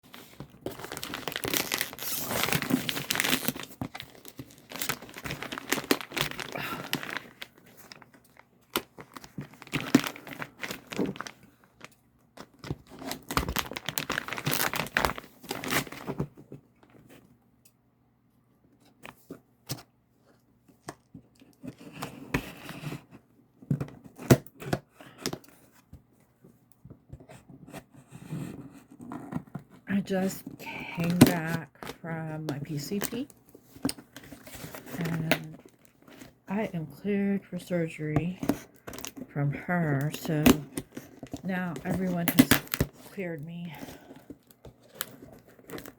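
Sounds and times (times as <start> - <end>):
packaging torn and crinkled: 0.1 - 11.5, 12.6 - 16.2, 40.0 - 43.1, 43.8 - 45.9.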